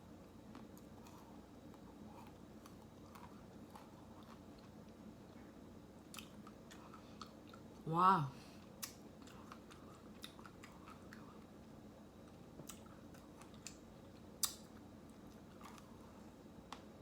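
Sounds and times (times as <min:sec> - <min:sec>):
person chewing close up: 0:00.4 - 0:07.8, 0:08.6 - 0:16.1.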